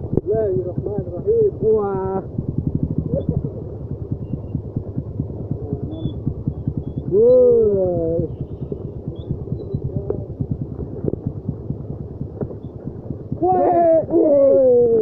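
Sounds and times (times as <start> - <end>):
motorcycle engine idling: 0.0 - 15.0
person calling out: 13.4 - 15.0.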